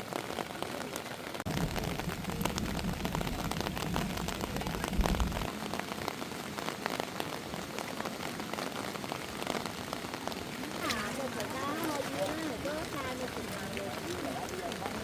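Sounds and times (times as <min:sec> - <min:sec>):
heavy rain falling: 0:00.0 - 0:15.0
low rumble: 0:01.5 - 0:05.5.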